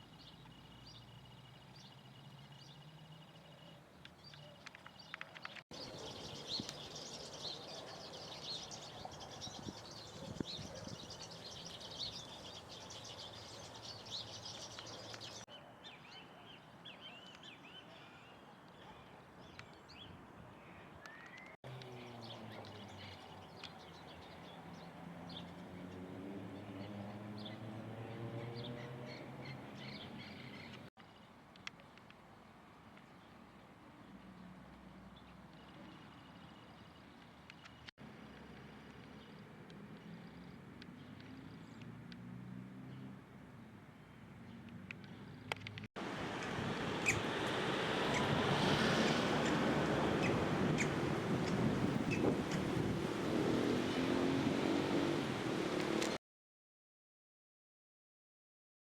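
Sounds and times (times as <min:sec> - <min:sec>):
small birds chirping: 0:00.0 - 0:31.8, 0:46.4 - 0:55.3.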